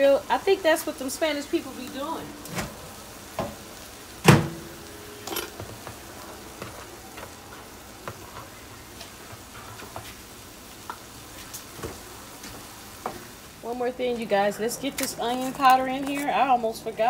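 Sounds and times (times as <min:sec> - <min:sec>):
chicken sizzling in a wok: 0:00.0 - 0:17.0.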